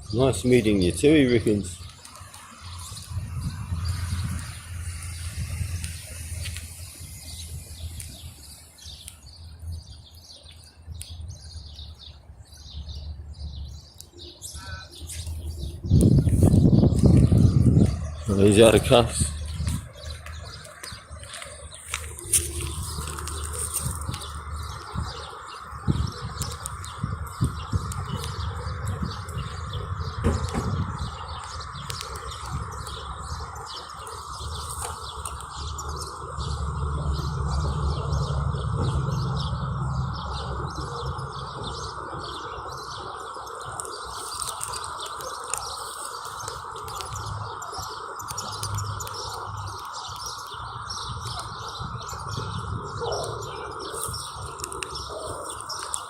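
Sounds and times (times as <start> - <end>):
birds chirping: 0.0 - 56.0
low rumble: 15.3 - 42.9.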